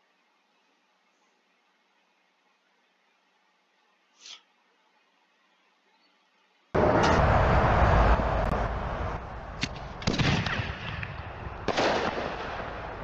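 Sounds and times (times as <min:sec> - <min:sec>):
firework bangs: 0:09.6 - 0:13.0.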